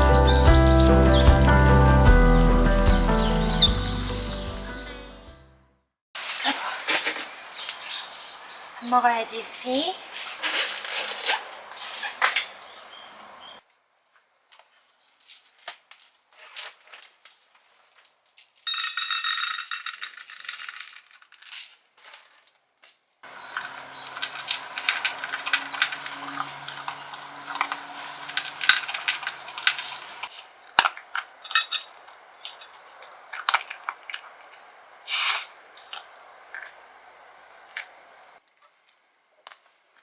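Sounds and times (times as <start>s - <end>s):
steady hiss: 6.2s - 13.5s, 23.2s - 30.6s, 34.5s - 38.4s
dishes and utensils clinking: 23.3s - 30.3s, 31.4s - 32.8s.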